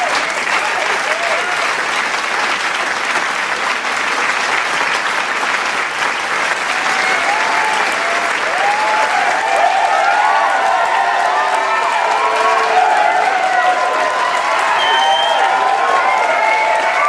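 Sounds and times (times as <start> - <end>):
crowd cheering and shouting: 0.0 - 2.3, 6.5 - 17.0
crowd applauding: 0.0 - 17.0.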